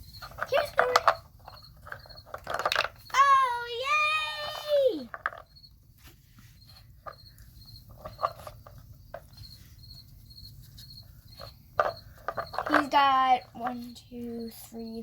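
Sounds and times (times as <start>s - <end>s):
puzzle covers clicking and knocking: 0.2s - 3.2s.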